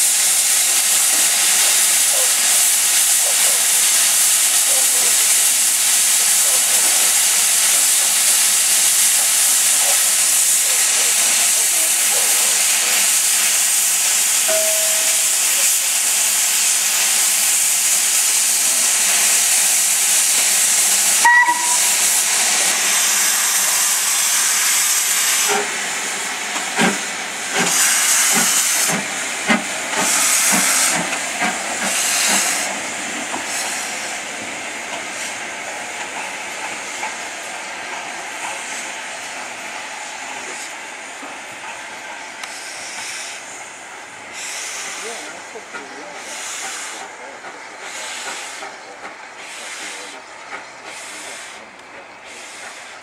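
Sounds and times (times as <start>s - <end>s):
steam blasts with knocks: 0.0s - 43.6s, 44.2s - 53.0s
steam locomotive hissing: 0.0s - 53.0s
brief high tone: 14.5s - 15.1s.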